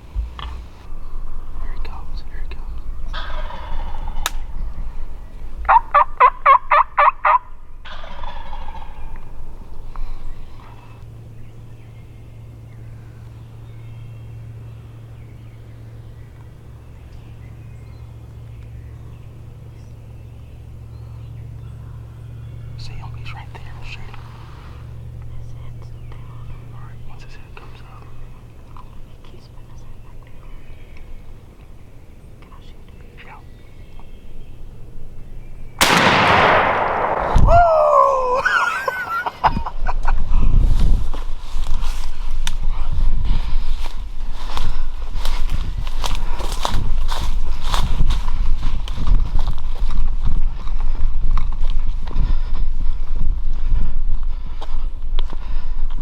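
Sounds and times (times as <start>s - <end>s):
steady low hum: 0.0s - 56.0s
songbird chirps: 10.0s - 35.8s
shotgun firing: 35.8s - 37.7s
loud pitched cry: 37.2s - 39.0s.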